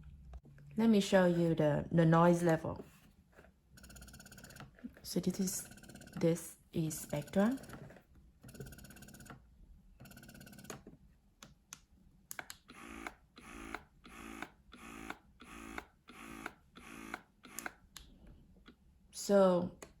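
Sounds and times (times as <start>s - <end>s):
breast pump motor cycling: 3.8s - 9.4s, 10.0s - 10.8s, 12.5s - 18.0s.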